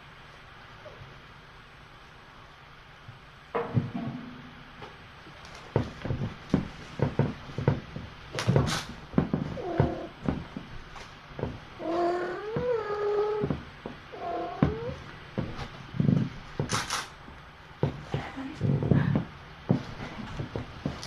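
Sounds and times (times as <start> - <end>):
knocks and bumps: 3.5 - 21.0
cat meowing: 11.8 - 15.0.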